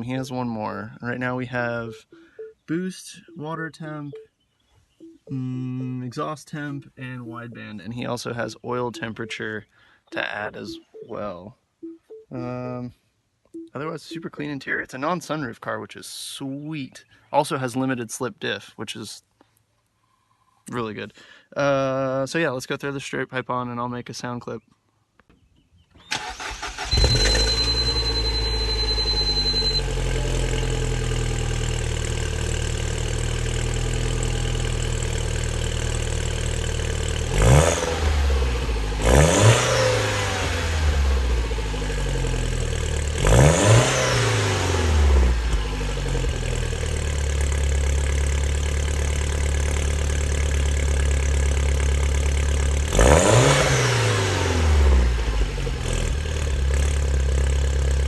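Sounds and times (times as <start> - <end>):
car engine idling: 26.2 - 39.1, 39.9 - 43.3, 44.2 - 53.0, 54.9 - 58.0
engine revving: 26.2 - 47.5, 52.8 - 57.9.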